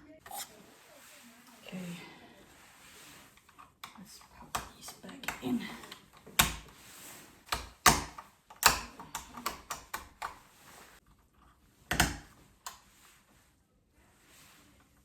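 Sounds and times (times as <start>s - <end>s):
light switches clicking and knocking: 3.8s - 6.7s, 7.5s - 10.4s, 11.9s - 12.8s.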